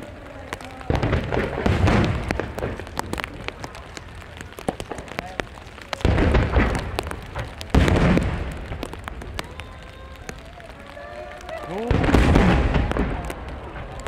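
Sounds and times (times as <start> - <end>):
fireworks booming: 0.0 - 14.0
fireworks crackling: 0.0 - 14.0.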